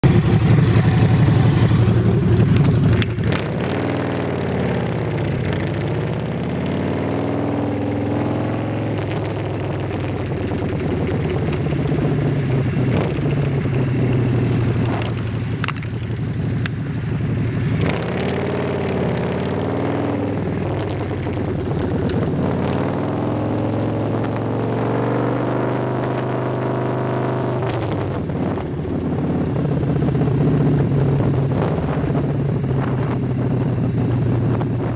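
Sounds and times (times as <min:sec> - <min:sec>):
vehicle engine revving: 0:00.0 - 0:34.9
wind rushing over microphone: 0:08.0 - 0:34.9.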